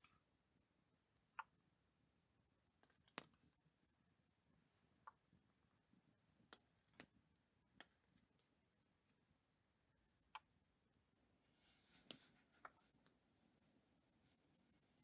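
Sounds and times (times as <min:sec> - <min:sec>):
faint clicks and ticks: 0:02.8 - 0:03.5.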